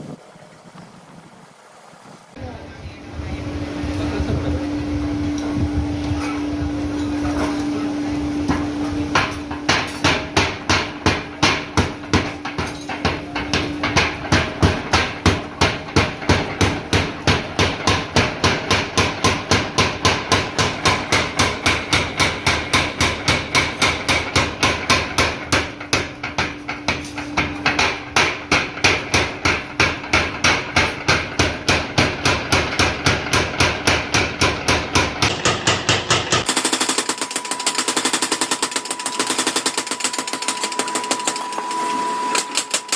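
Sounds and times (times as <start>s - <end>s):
power hammer striking hot steel: 8.4s - 42.9s.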